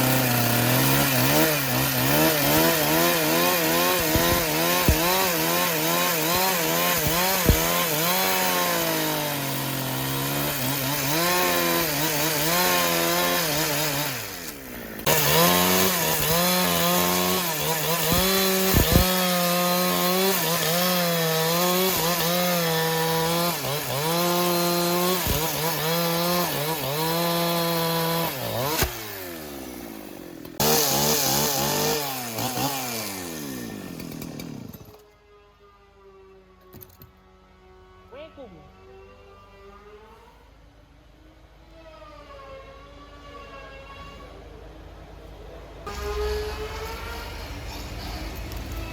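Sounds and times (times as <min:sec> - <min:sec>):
chainsaw cutting wood: 0:00.0 - 0:35.1, 0:45.9 - 0:48.9.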